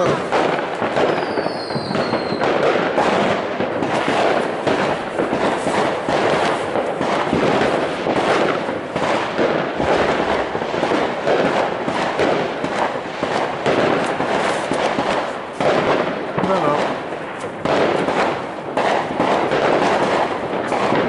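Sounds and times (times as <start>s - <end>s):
fireworks bangs and crackling: 0.0s - 21.0s
falling firework whistle: 1.0s - 2.6s.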